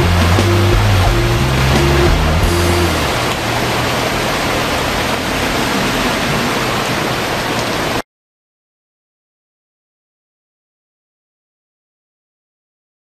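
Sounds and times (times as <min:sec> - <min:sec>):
cars driving through water: 0:00.0 - 0:08.0
heavy rain pouring: 0:00.0 - 0:08.0.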